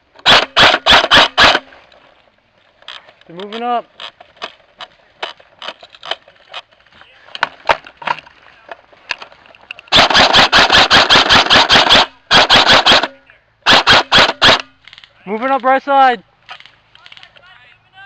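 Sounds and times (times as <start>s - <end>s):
airsoft rifle full-auto burst: 0.2s - 1.7s, 9.9s - 14.7s.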